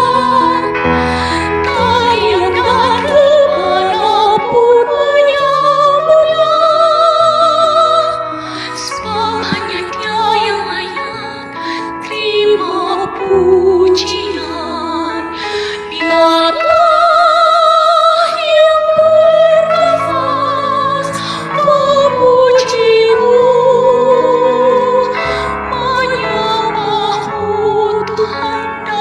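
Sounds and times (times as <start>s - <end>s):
choir singing: 18.8s - 28.3s.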